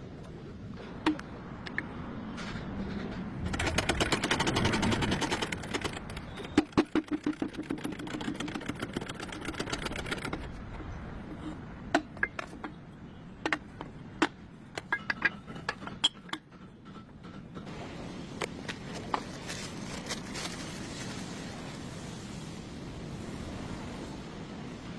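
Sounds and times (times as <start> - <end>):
fast clicking of hand tools: 3.4 - 10.8.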